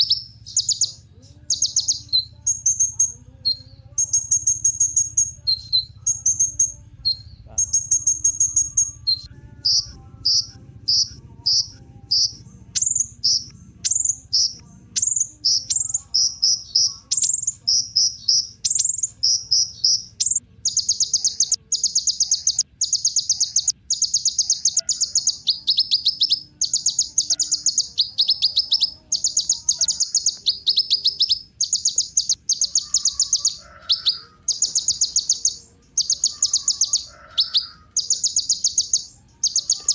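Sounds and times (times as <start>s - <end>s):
bird singing high-pitched song: 0.0s - 39.9s.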